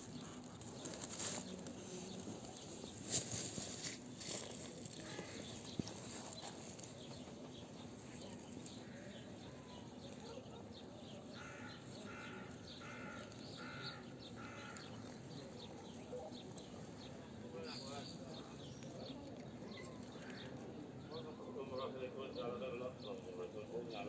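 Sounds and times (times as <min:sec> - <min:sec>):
small birds chirping: 0:00.0 - 0:24.0
crow cawing: 0:11.3 - 0:15.2.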